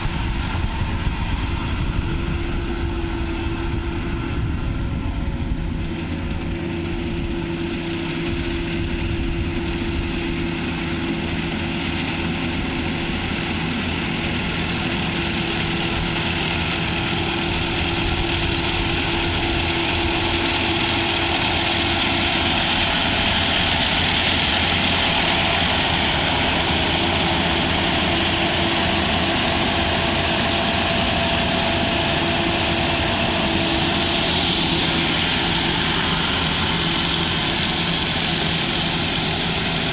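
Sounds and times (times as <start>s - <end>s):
harvesting machine engine running: 0.0s - 39.9s.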